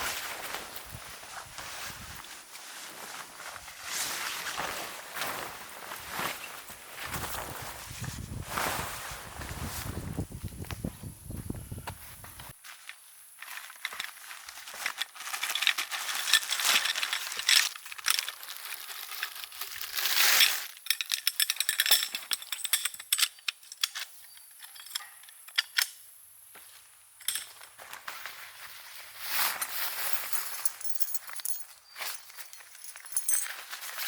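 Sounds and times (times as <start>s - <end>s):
camping gear rustling: 0.0s - 25.6s, 26.5s - 34.0s
light metallic clinks: 29.6s - 34.0s.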